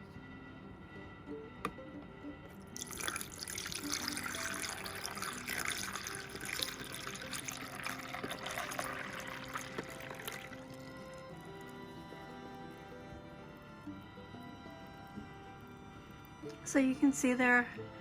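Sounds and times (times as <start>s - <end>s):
faint background music: 0.0s - 18.0s
water pouring into container: 2.8s - 11.8s.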